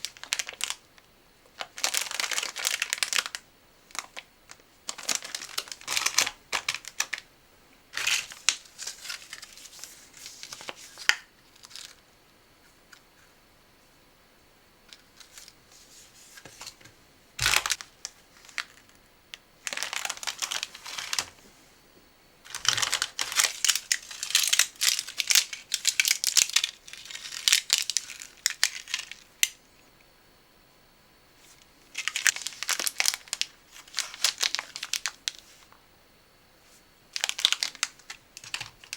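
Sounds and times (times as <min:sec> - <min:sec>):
plastic packaging crinkling: 0:00.0 - 0:07.3, 0:07.9 - 0:12.0, 0:17.4 - 0:21.4, 0:22.5 - 0:29.6, 0:31.9 - 0:35.7, 0:37.1 - 0:38.9.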